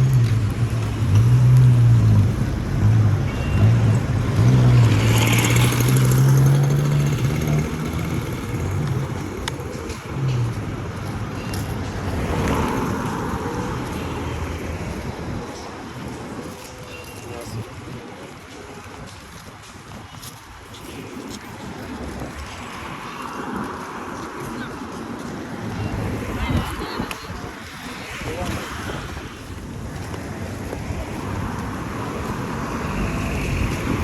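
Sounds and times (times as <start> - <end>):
vehicle engine droning: 0.0 - 16.3, 27.8 - 34.0
street traffic noise: 0.0 - 34.0.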